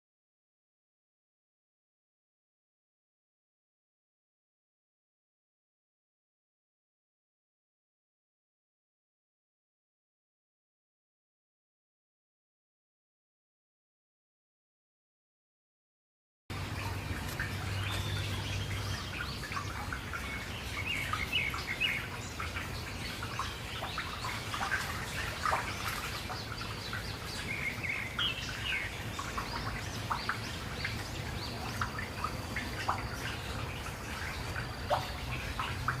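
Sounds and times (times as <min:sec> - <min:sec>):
wild birds chirping: 0:16.5 - 0:36.0.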